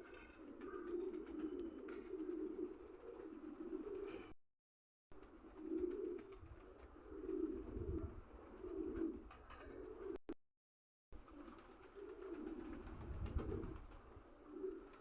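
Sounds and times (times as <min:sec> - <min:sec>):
pigeons cooing: 0:00.0 - 0:04.3, 0:05.2 - 0:10.2, 0:11.3 - 0:15.0.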